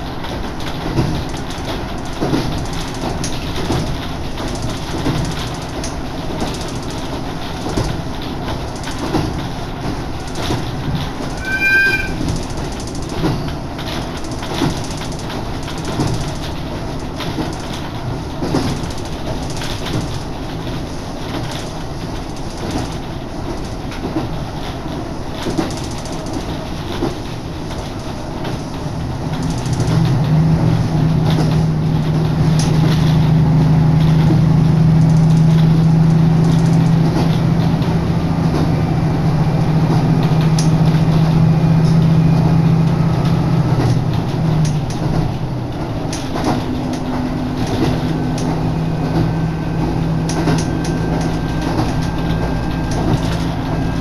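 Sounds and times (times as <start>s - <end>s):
wheels clicking over rails: 0.0s - 11.5s, 12.1s - 54.0s
railcar rumbling on track: 0.0s - 54.0s
brief high tone: 11.4s - 12.3s.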